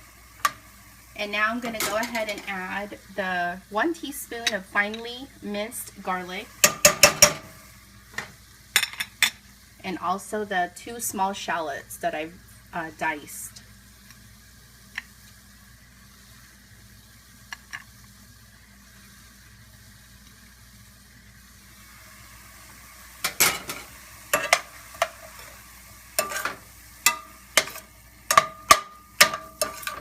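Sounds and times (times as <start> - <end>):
meat sizzling in a skillet: 0.0 - 30.0
utensil clanking against pan: 6.6 - 7.5, 23.2 - 25.5, 26.2 - 30.0.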